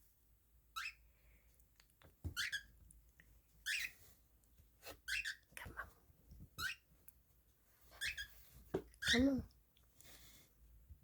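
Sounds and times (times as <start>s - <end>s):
cockatiel chirping: 0.7s - 1.0s, 2.3s - 2.7s, 3.6s - 4.1s, 5.0s - 5.5s, 6.6s - 6.9s, 8.0s - 8.4s.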